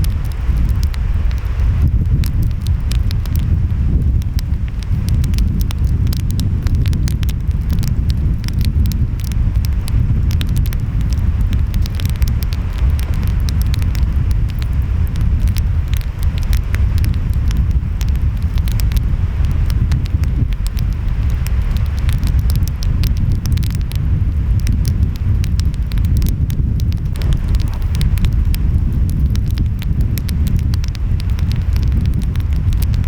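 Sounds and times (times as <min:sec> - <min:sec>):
wood fire crackling and popping: 0:00.0 - 0:33.0
ocean waves rumbling: 0:26.9 - 0:33.0.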